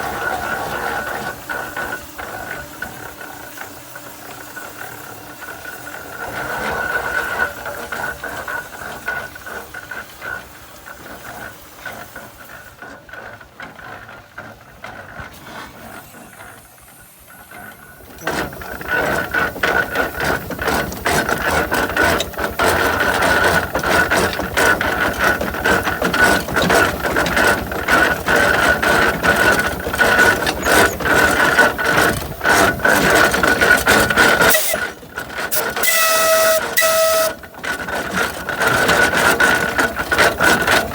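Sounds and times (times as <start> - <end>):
steam engine gearing clattering: 0.0 - 40.9.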